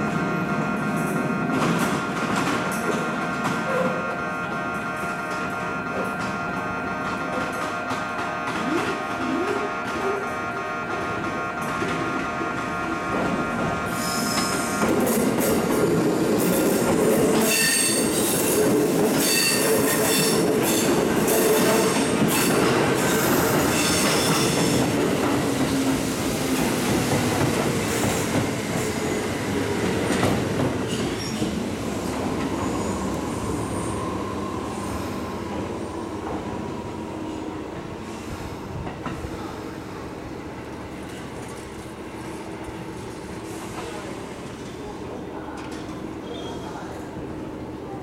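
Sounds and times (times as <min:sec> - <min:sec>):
electric train running: 0:00.0 - 0:38.2
train wheels squealing: 0:17.4 - 0:18.6, 0:19.2 - 0:24.9, 0:30.9 - 0:31.6, 0:46.2 - 0:46.9.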